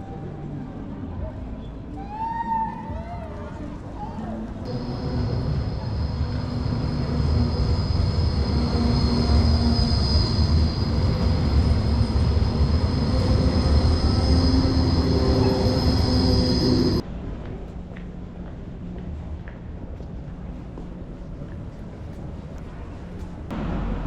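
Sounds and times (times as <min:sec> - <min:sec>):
rail vehicle rumble: 0:03.0 - 0:24.0
wheels squealing: 0:04.7 - 0:17.0.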